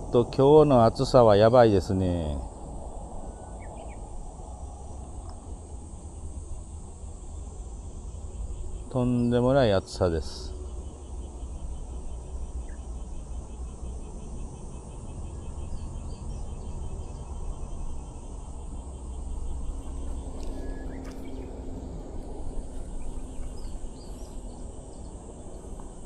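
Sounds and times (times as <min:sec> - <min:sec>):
faint insects chirping: 0:00.0 - 0:26.0
low rumble: 0:19.1 - 0:26.0.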